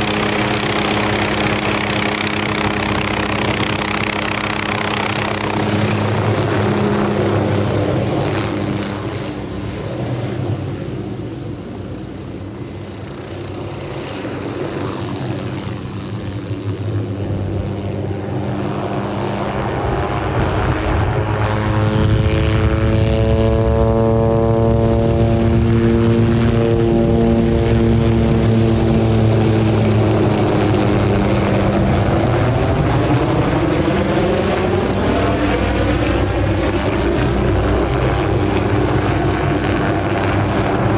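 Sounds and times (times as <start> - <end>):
helicopter rotor beat: 0.0 - 40.9
wavering sweeping turbine tone: 17.4 - 40.9.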